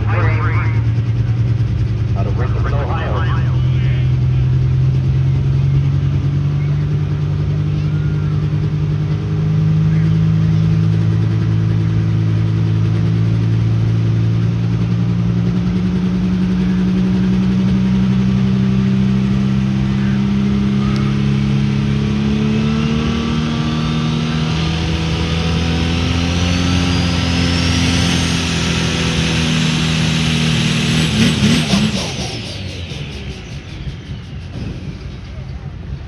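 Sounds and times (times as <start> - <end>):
high whine: 0.0 - 6.0, 28.2 - 36.0.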